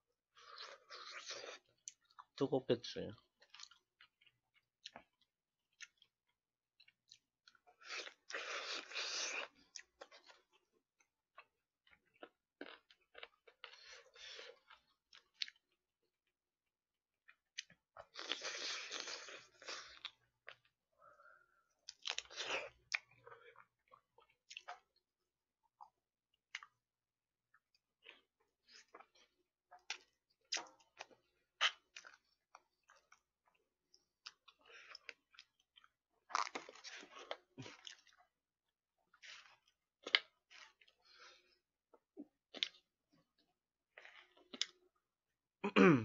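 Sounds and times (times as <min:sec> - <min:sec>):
close chewing: 0:28.0 - 0:38.4.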